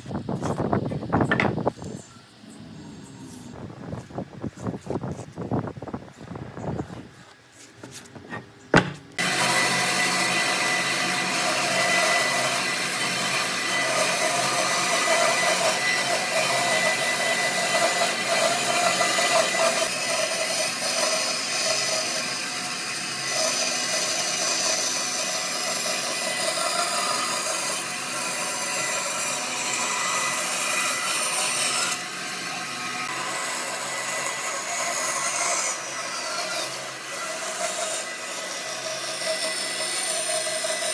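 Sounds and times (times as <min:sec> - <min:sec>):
power tool whirring: 0:08.8 - 0:40.9.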